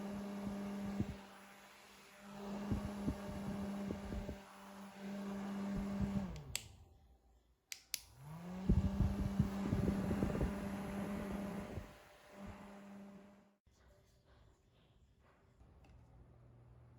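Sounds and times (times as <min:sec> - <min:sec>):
small electric fan motor humming: 0:00.0 - 0:06.8, 0:08.1 - 0:13.5
fan switch clicks: 0:07.7 - 0:08.1.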